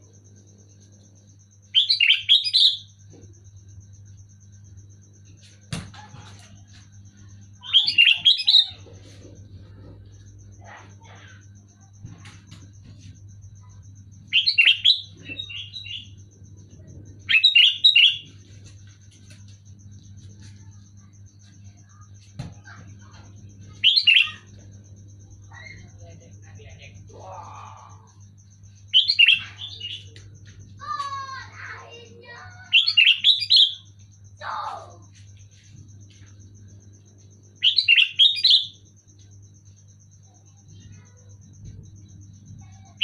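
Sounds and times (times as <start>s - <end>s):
low steady hum: 0.0s - 43.0s
bird chirping: 7.5s - 19.0s, 22.6s - 33.9s, 37.6s - 38.9s.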